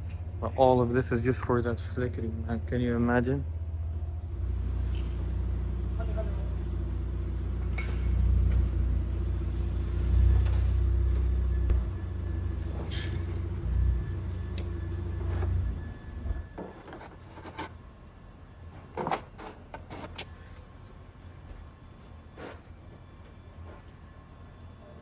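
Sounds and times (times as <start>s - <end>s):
car engine idling: 3.5s - 22.4s.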